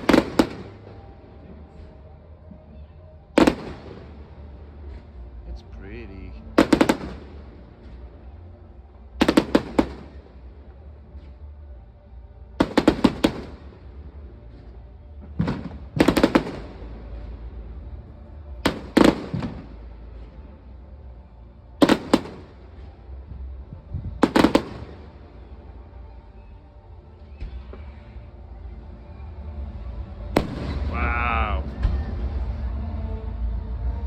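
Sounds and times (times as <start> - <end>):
fireworks bangs: 0.0 - 2.0, 3.4 - 5.1, 5.9 - 8.3, 9.2 - 10.4, 14.5 - 17.5, 18.5 - 20.6, 21.8 - 23.0, 24.2 - 25.6, 30.4 - 32.4.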